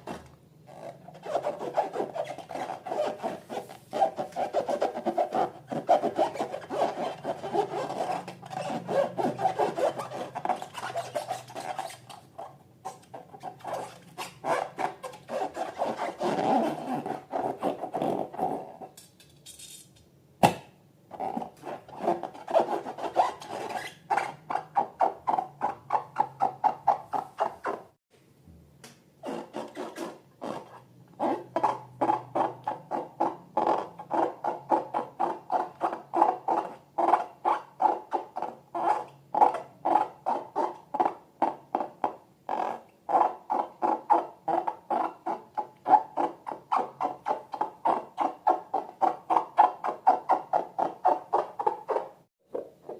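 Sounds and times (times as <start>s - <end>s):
rhythmic rubbing strokes: 0.7s - 18.6s.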